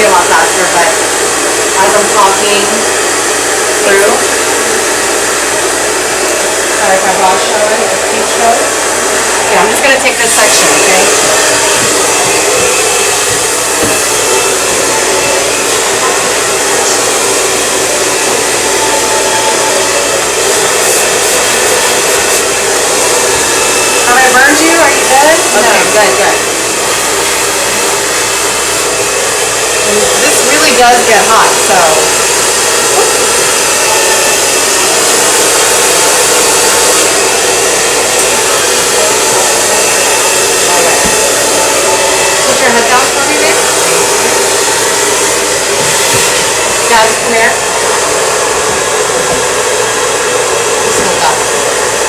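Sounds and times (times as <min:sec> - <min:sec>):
blow dryer running: 0:00.0 - 0:52.0.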